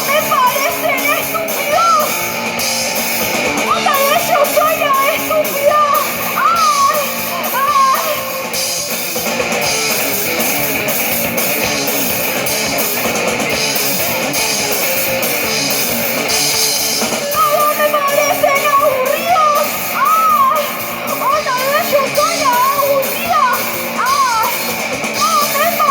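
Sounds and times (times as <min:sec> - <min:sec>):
person singing: 0:00.0 - 0:02.4, 0:03.6 - 0:08.6, 0:17.2 - 0:25.9
live rock band playing: 0:00.0 - 0:25.9.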